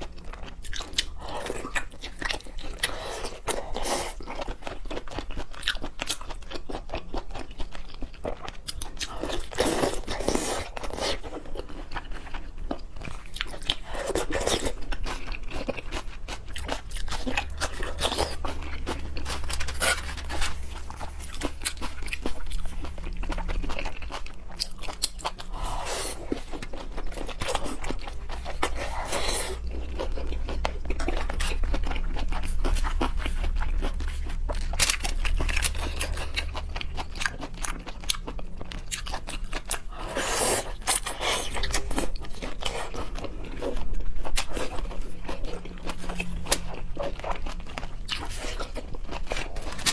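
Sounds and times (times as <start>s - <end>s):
chewing and crunching seafood: 0.0s - 49.9s
steady low hum: 12.4s - 49.9s.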